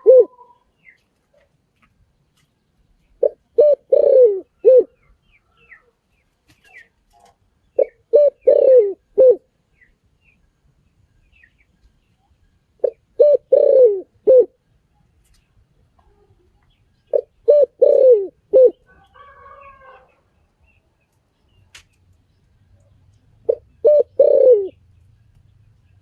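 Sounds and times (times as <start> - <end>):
dove cooing: 0.0 - 0.7, 3.2 - 5.1, 7.8 - 9.5, 12.8 - 14.6, 17.1 - 20.1, 23.4 - 24.9
small birds chirping: 0.0 - 26.0.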